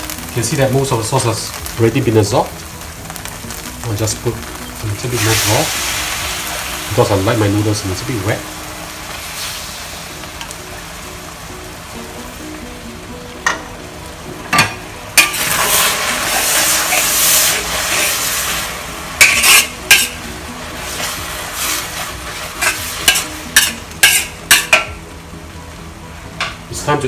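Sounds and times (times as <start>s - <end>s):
noodles sizzling in a wok: 0.0s - 27.0s
spatula scraping a wok: 15.2s - 20.2s, 20.8s - 24.9s.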